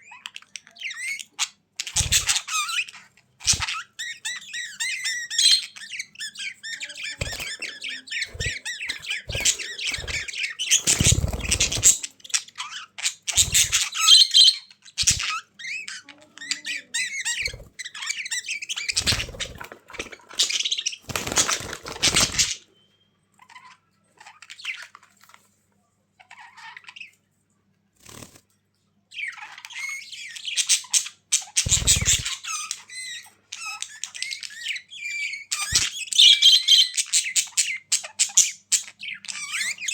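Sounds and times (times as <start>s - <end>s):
budgerigars chattering and warbling: 0.0s - 22.8s, 29.1s - 39.9s.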